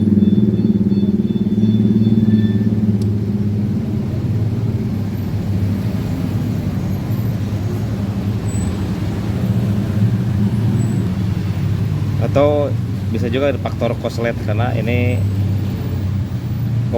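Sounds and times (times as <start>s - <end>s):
small engine idling: 0.0s - 5.6s.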